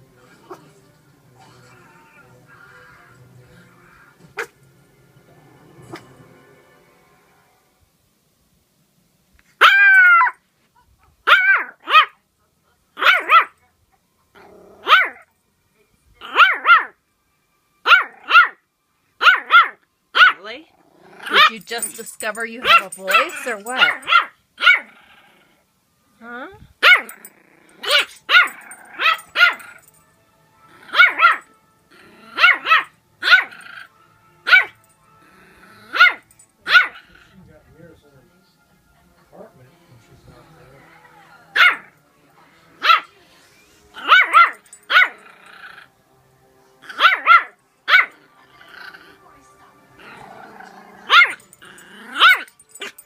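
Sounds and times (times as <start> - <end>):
dog growling low: 0.2 - 4.4, 14.4 - 14.9, 20.7 - 21.4, 24.8 - 25.6, 27.1 - 27.9, 31.9 - 32.4, 35.2 - 36.0, 37.0 - 37.4, 45.1 - 45.9, 48.2 - 49.2, 50.0 - 52.2
dog barking: 11.3 - 12.2, 13.0 - 13.6, 14.8 - 15.2, 16.3 - 17.0, 17.9 - 18.6, 19.2 - 20.4, 21.3 - 21.6, 22.6 - 24.9, 26.8 - 27.2, 27.8 - 29.6, 30.9 - 31.4, 32.4 - 33.6, 34.5 - 34.8, 35.9 - 37.1, 41.6 - 41.9, 42.8 - 43.1, 44.0 - 45.2, 46.9 - 48.2, 51.1 - 51.4, 52.1 - 53.0.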